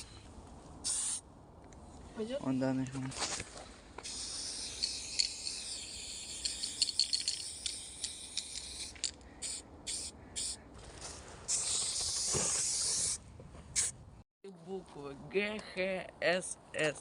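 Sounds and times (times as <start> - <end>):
spray paint can spraying: 0.8 - 1.2, 4.0 - 10.6, 11.5 - 13.2.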